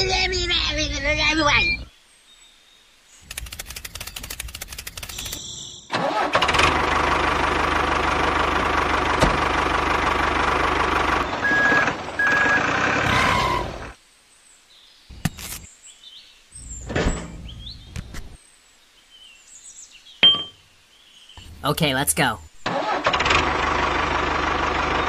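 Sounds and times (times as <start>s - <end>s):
tractor engine cranking and running: 3.3s - 13.9s, 22.6s - 25.0s.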